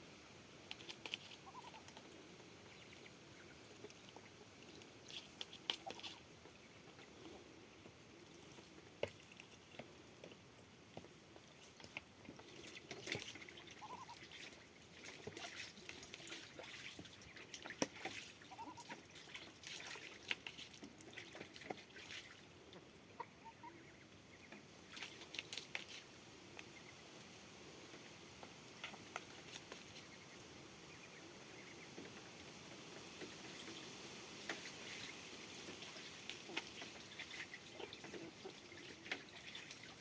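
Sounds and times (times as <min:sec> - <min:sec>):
birds pecking and cracking seed: 0:00.6 - 0:23.0, 0:24.4 - 0:40.0
soft bird chirps: 0:01.2 - 0:02.0.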